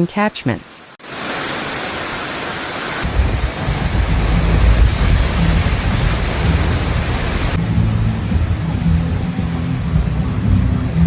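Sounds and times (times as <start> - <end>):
heavy rain hiss: 1.0 - 11.0
wind buffeting microphone: 3.0 - 11.0.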